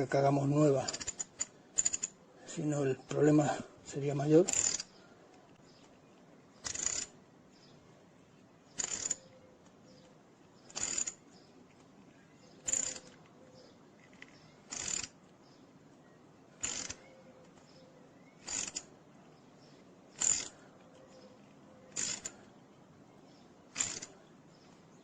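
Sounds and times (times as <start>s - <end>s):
tap wrench rasping: 0.9s - 2.2s, 4.5s - 4.9s, 6.6s - 7.1s, 8.8s - 9.2s, 10.7s - 11.2s, 12.7s - 13.2s, 14.1s - 15.1s, 16.6s - 17.0s, 18.4s - 18.9s, 20.2s - 20.6s, 21.9s - 22.4s, 23.8s - 24.1s.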